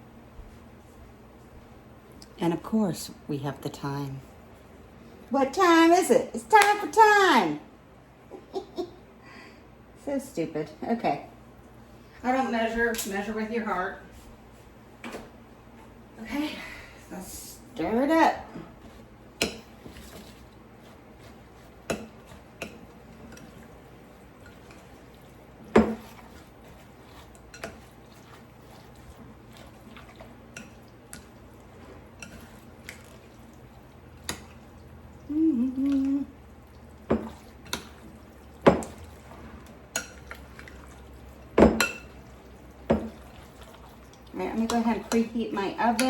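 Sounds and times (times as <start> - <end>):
spoon stirring thick filling: 17.8 - 46.0.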